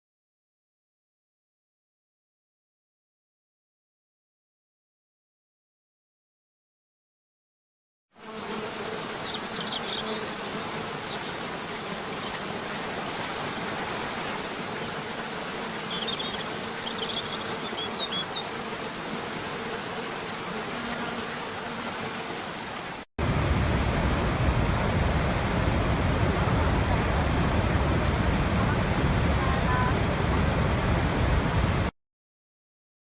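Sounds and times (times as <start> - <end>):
falling water rushing: 9.0 - 19.4, 21.5 - 31.9
high bird chirps: 15.9 - 18.5.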